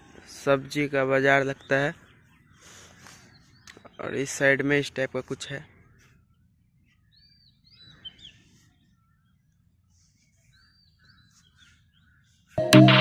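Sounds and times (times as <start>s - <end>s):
bird chirps: 5.8s - 13.0s
background music: 12.6s - 13.0s.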